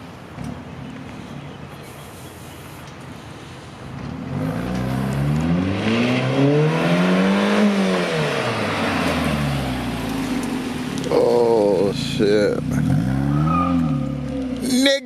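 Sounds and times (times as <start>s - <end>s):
car engine revving: 3.8s - 14.8s.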